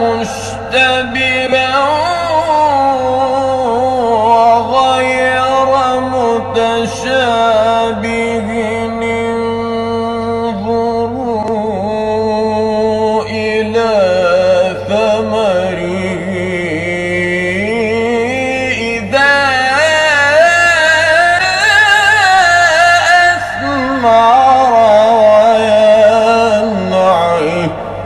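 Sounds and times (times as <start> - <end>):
man chanting melodically: 0.0 - 28.0.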